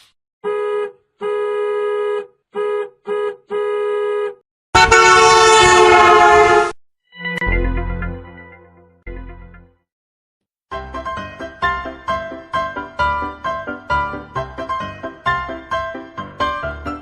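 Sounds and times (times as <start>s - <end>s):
harsh horn blast: 0.4s - 6.8s
horn honking: 0.4s - 6.8s.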